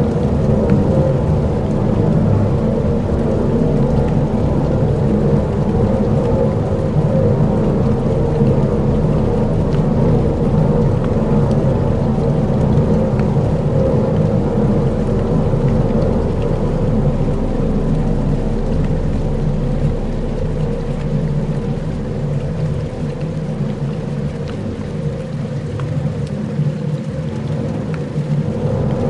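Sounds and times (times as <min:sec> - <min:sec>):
deep rumbling drone: 0:00.0 - 0:29.0
rain-like hiss: 0:00.0 - 0:29.0
faint ticks: 0:15.6 - 0:29.0.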